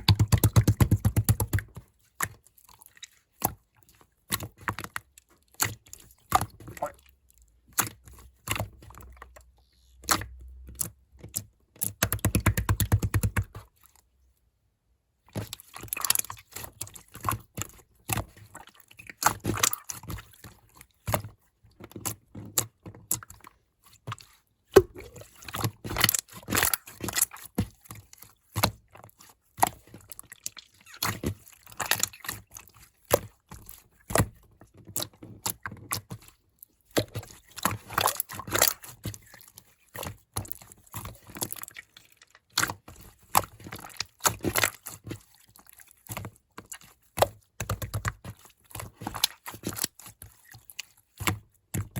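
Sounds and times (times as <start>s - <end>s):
slime squished by hand: 24.2s - 34.4s.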